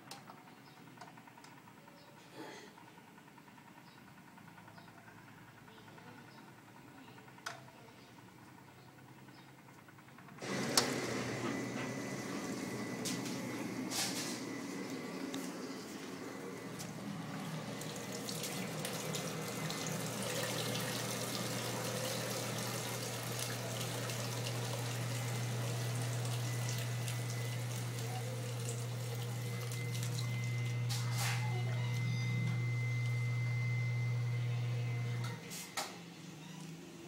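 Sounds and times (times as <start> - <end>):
steady motor hum: 0.0 - 37.0
water splashing in dishwasher: 16.8 - 30.7.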